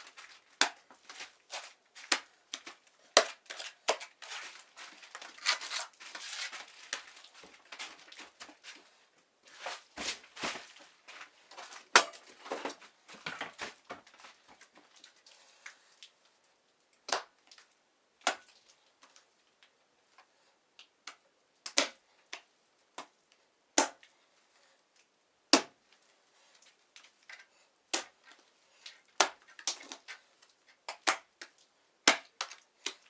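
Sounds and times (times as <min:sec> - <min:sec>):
crinkling noises: 0:00.0 - 0:16.6.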